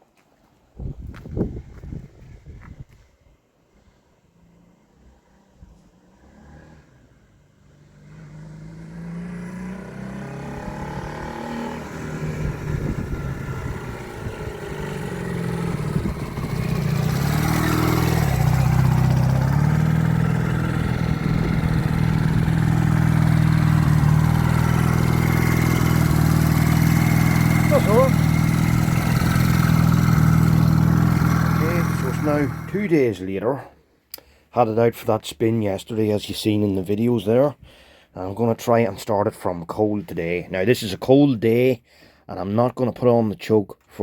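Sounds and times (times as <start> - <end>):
motorcycle engine passing: 4.3 - 32.9.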